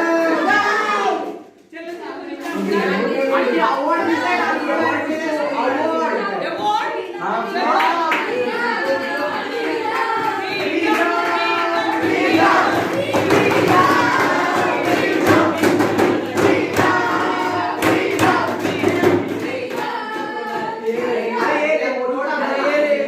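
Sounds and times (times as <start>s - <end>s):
young people singing in chorus: 0.0s - 1.5s, 2.1s - 23.0s
sharp claps: 9.8s - 21.1s.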